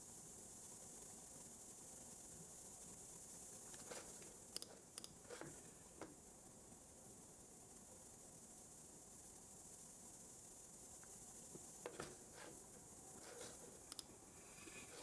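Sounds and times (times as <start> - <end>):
faint hiss: 0.0 - 15.0
computer typing and mouse clicks: 4.6 - 5.6, 13.9 - 14.1.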